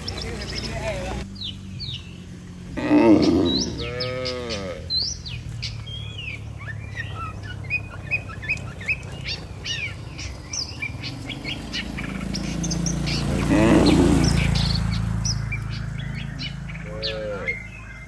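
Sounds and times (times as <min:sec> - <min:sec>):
small birds chirping: 0:00.0 - 0:18.0
cow mooing: 0:02.8 - 0:05.2, 0:13.2 - 0:15.4, 0:16.5 - 0:17.8.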